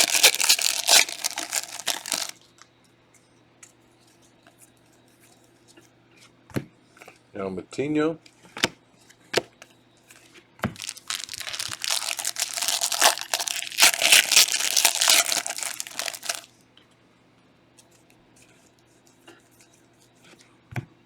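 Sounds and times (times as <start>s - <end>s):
foil wrapper tearing and crinkling: 0.0s - 2.4s, 10.8s - 16.5s.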